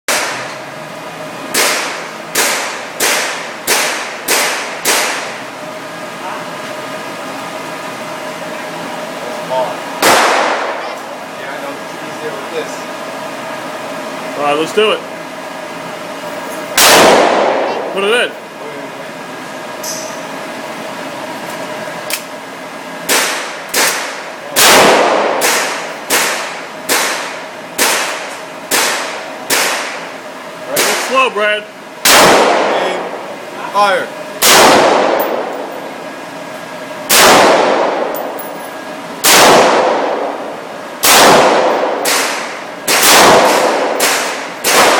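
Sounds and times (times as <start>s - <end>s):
gunshots echoing indoors: 0.1s - 0.5s, 1.5s - 5.4s, 10.0s - 11.0s, 16.8s - 18.0s, 23.0s - 30.0s, 32.0s - 33.2s, 34.4s - 35.8s, 37.1s - 38.4s, 39.2s - 44.9s.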